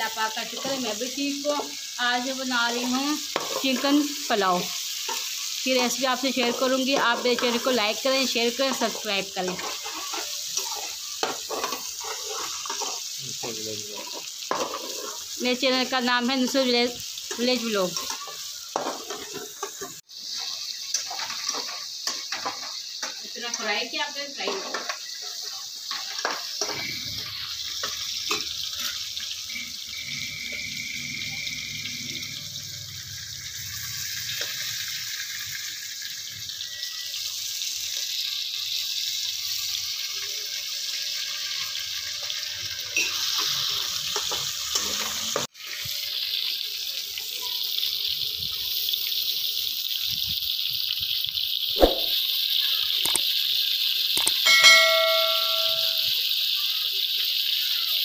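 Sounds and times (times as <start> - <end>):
food sizzling in a pan: 0.0 - 58.0
metal spatula clinking on pan: 3.4 - 4.0, 8.8 - 13.0, 54.2 - 56.2
sharp knock: 51.8 - 52.1.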